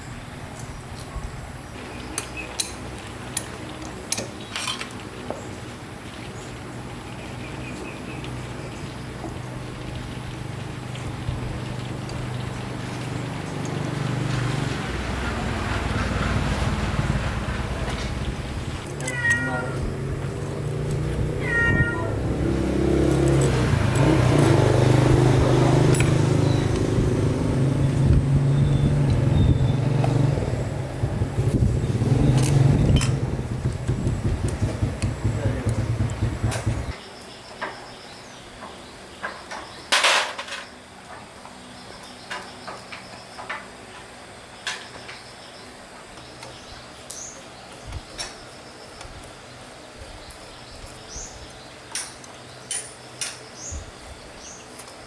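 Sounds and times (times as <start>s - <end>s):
metal tools clinking: 2.2s - 5.0s, 18.8s - 21.6s, 23.0s - 26.8s, 51.9s - 53.5s
engine humming: 5.1s - 37.0s
cat meowing: 19.0s - 20.0s, 21.3s - 22.4s
steady low hum: 22.6s - 37.0s.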